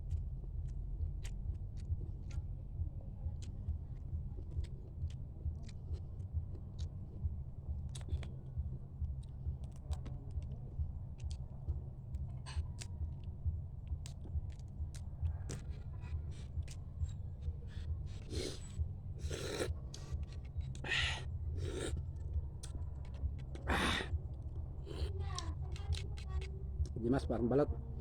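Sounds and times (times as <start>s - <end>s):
low rumble: 0.0s - 28.0s
crab shell cracking and chewing: 17.7s - 24.1s.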